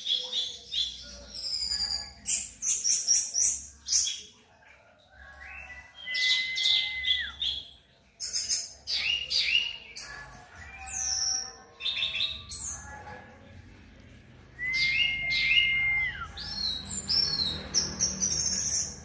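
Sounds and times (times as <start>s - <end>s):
bird singing: 5.4s - 13.0s, 14.6s - 19.0s.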